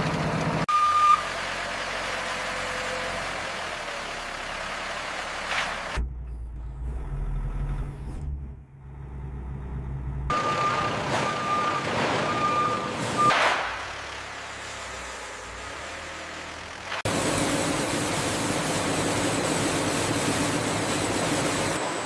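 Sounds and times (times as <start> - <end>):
heavy machine noise with hiss: 17.1 - 22.0.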